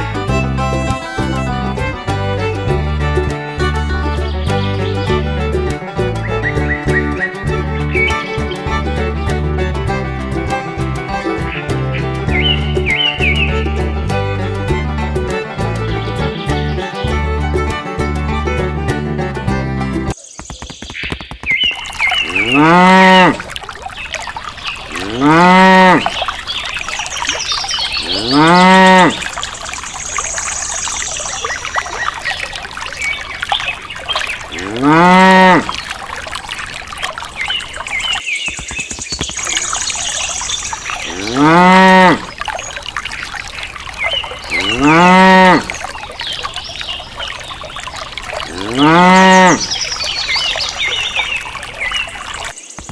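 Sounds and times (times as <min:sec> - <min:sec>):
water trickling: 0:00.0 - 0:20.2, 0:21.4 - 0:52.9
cow mooing: 0:22.2 - 0:23.5, 0:24.9 - 0:26.1, 0:28.0 - 0:29.2, 0:34.6 - 0:35.7, 0:41.1 - 0:42.3, 0:44.5 - 0:45.7, 0:48.5 - 0:49.7.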